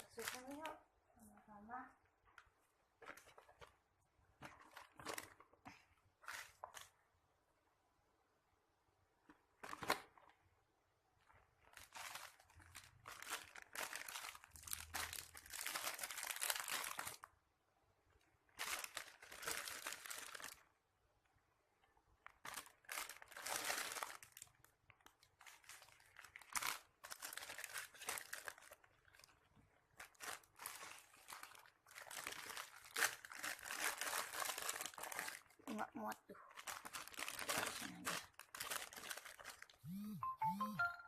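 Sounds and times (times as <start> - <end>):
plastic packaging crinkling: 0.0 - 0.8, 4.4 - 5.6, 11.2 - 17.4, 18.4 - 20.7, 22.2 - 39.8.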